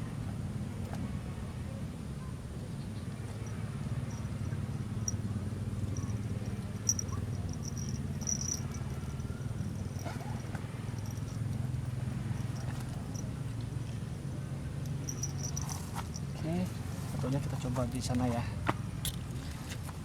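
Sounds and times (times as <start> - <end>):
steady low rumble: 2.4 - 16.9.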